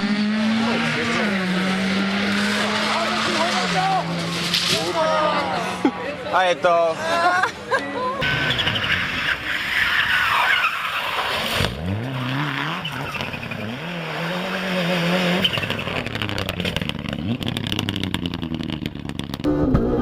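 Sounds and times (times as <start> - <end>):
car engine revving: 0.0 - 5.0, 8.2 - 20.0
car tyres skidding: 0.3 - 5.6, 8.2 - 19.3
engine rapid crackling: 8.2 - 20.0.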